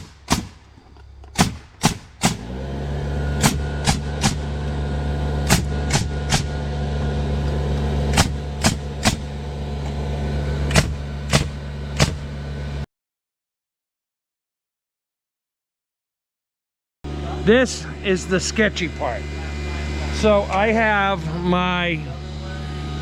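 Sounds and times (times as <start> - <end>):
nails driven into timber: 0.0 - 2.5, 3.4 - 4.4, 5.4 - 6.6, 8.1 - 9.3, 10.7 - 12.3
motor running steadily: 0.0 - 12.8, 17.1 - 23.0.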